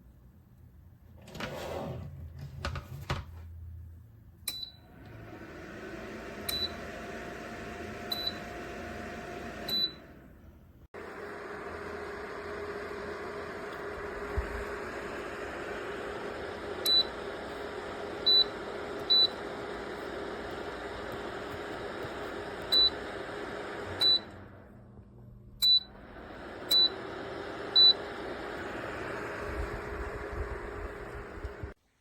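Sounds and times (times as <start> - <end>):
space heater fan running: 4.8 - 31.8
short high control panel beeps: 25.6 - 26.0.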